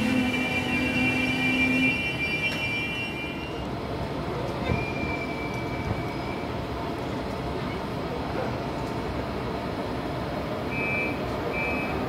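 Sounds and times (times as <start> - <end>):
high wheel squeal: 0.0 - 3.7, 4.6 - 6.5
train coaches rolling past: 0.0 - 12.0.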